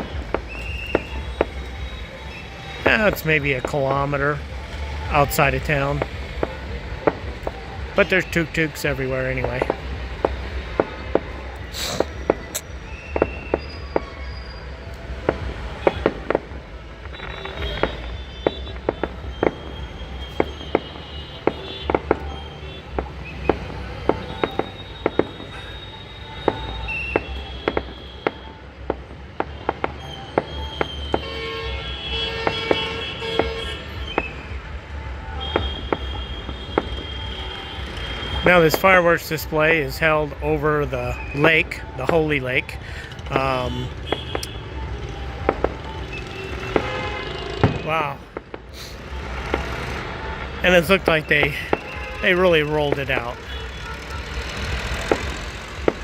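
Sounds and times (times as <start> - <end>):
fireworks bangs and cracks: 0.0 - 56.0
traffic rumble: 0.0 - 56.0
vehicle horns tooting: 0.0 - 56.0.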